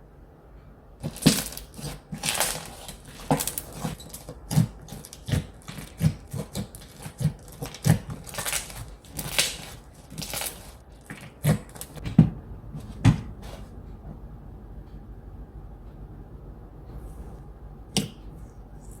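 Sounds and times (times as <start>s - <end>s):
slime squelching and popping: 1.0s - 12.0s.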